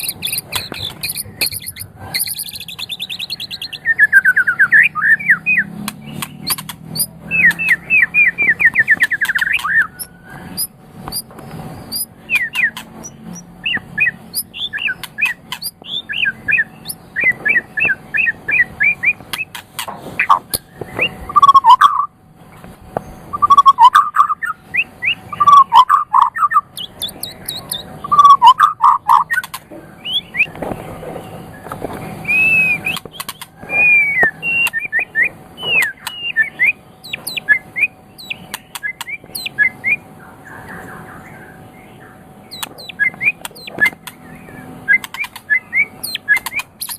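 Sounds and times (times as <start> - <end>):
sharp clicks: 0.0 - 3.5, 5.8 - 7.8, 8.6 - 16.0, 26.7 - 27.9, 29.2 - 29.7, 34.2 - 34.9, 35.6 - 36.3, 38.2 - 39.5, 42.5 - 44.2, 44.9 - 46.9
songbird singing: 0.0 - 46.9.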